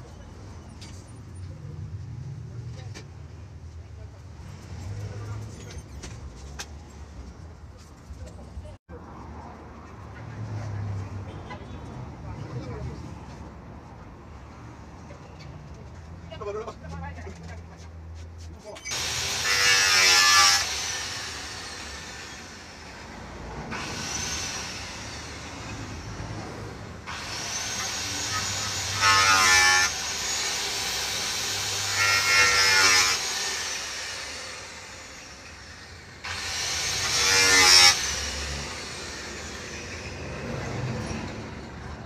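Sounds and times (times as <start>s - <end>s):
power tool cutting sheet metal: 18.8s - 41.6s.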